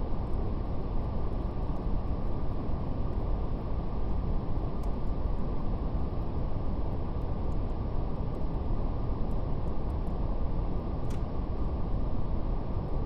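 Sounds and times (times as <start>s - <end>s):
faint fire crackle: 0.0s - 13.0s.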